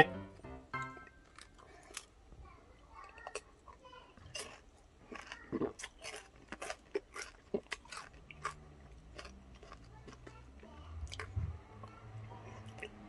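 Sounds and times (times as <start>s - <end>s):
crisp chewing crunches: 1.3s - 2.2s, 3.0s - 11.4s.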